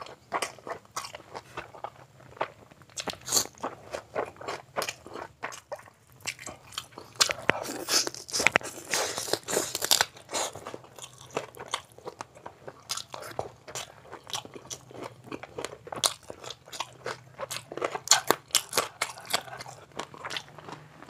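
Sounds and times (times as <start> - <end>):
wet chewing and mouth smacks: 10.4 - 20.9.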